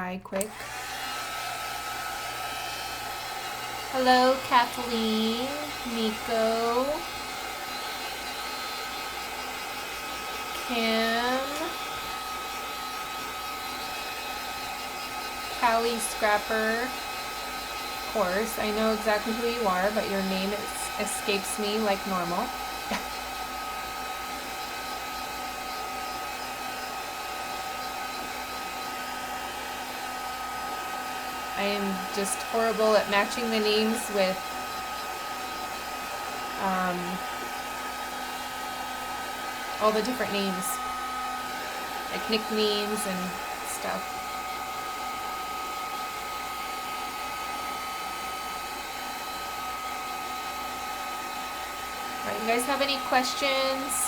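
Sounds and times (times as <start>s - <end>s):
heat tool blowing whir: 0.0s - 54.0s.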